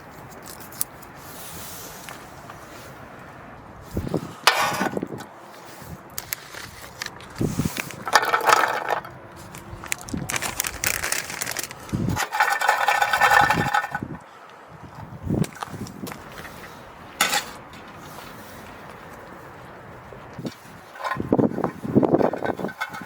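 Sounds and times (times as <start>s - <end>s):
camping gear rustling and scraping: 0.0s - 14.1s, 15.3s - 19.6s, 20.3s - 23.0s.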